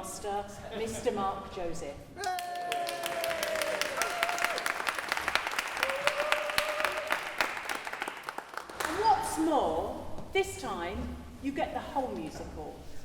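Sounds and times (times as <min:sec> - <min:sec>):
audience applauding: 0:02.2 - 0:09.0.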